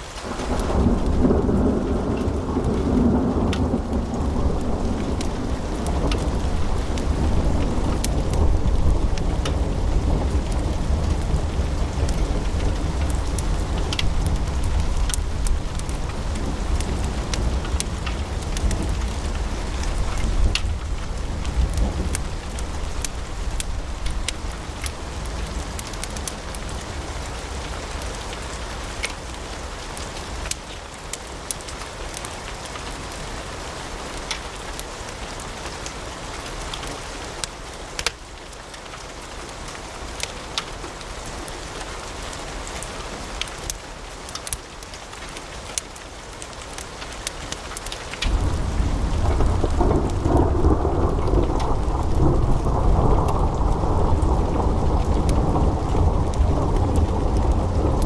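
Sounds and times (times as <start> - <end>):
deep fire rumble: 0.3 - 27.6, 48.2 - 58.0
wood fire crackling and popping: 3.5 - 33.2, 34.2 - 35.9, 36.7 - 39.0, 43.4 - 58.0.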